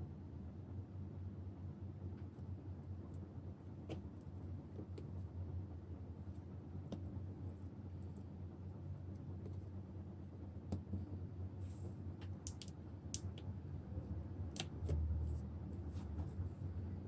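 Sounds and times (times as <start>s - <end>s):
steady low hum: 0.0s - 17.0s
light clicks and taps: 12.2s - 13.5s.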